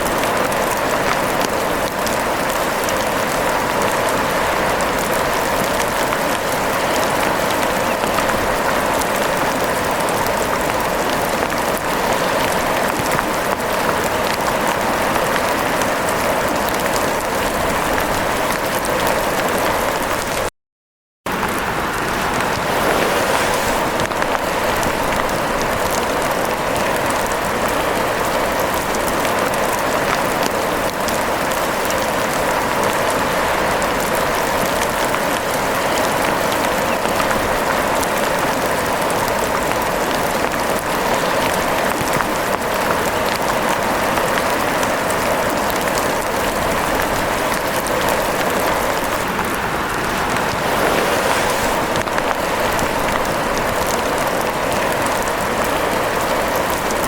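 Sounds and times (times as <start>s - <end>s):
rain falling on surface: 0.0s - 20.5s, 21.3s - 57.0s.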